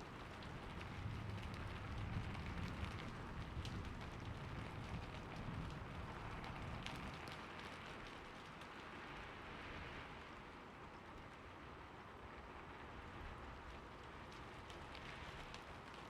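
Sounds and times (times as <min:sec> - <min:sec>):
raindrops ticking: 0:00.0 - 0:09.0, 0:13.6 - 0:16.0
steady rain: 0:00.0 - 0:16.0.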